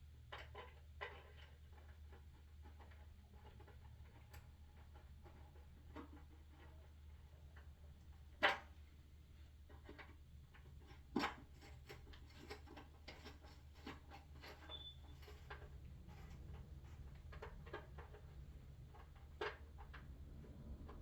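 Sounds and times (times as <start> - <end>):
light clicks and scrapes: 0.3 - 21.0
brief high squeak: 14.6 - 15.1.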